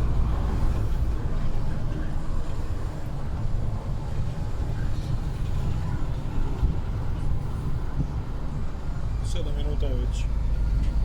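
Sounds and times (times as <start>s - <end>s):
heavy truck engine rumble: 0.0s - 11.0s.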